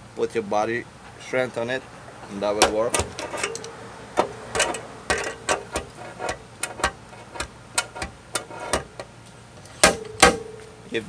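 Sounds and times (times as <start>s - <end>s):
sheet metal ringing: 2.2s - 9.0s, 9.8s - 10.9s
metallic clicks of dent-repair tools: 2.5s - 10.4s.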